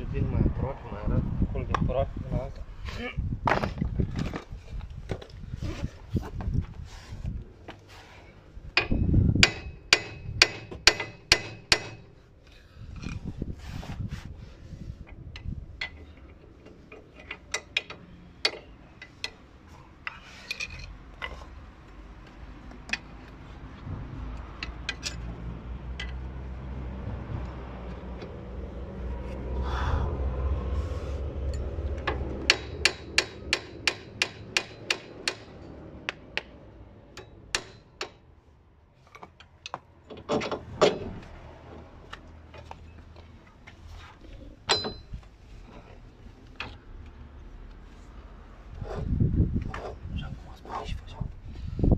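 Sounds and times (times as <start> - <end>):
low steady rumble: 23.4 - 39.0.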